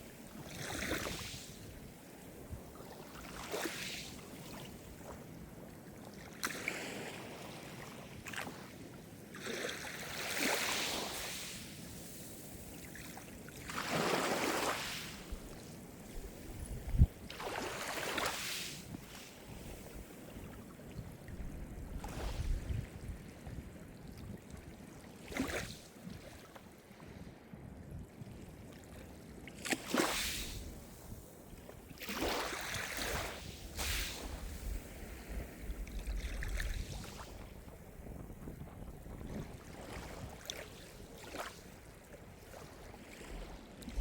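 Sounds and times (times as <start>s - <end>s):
small waves breaking on shore: 0.0s - 27.5s, 28.6s - 44.0s.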